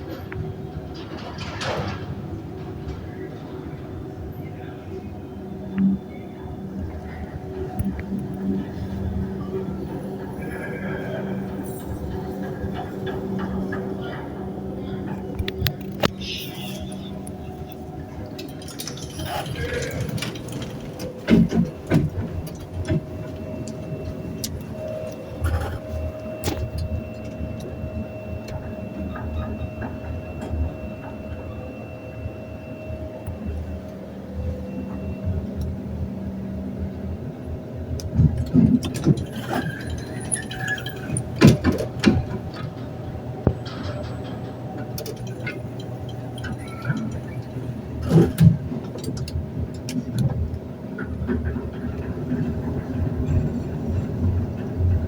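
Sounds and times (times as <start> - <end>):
elevator rumble: 0.0 - 55.0
elevator whine: 0.0 - 55.0
rattles and clicks: 15.1 - 27.7, 38.0 - 55.0.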